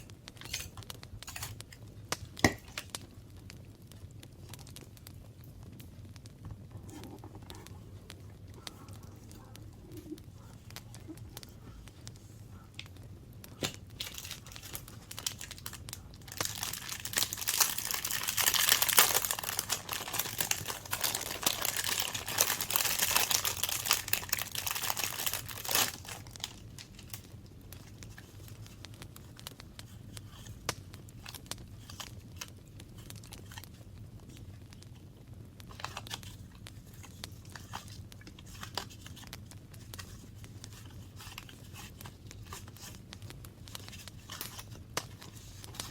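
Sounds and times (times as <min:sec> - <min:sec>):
paper crinkling and tearing: 0:13.6 - 0:28.8, 0:35.7 - 0:43.0, 0:43.6 - 0:45.9
paper rustling: 0:16.3 - 0:27.0.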